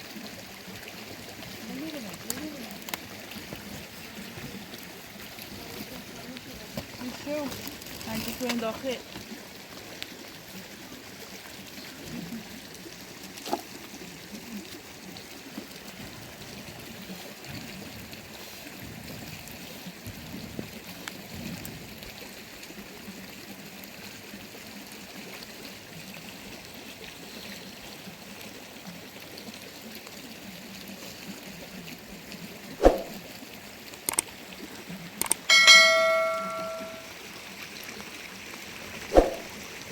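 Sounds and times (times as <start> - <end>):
trickling water: 0.0 - 39.9.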